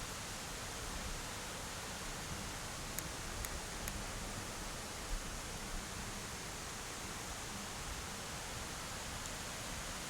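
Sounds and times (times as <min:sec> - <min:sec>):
mountain stream rushing: 0:00.0 - 0:10.0.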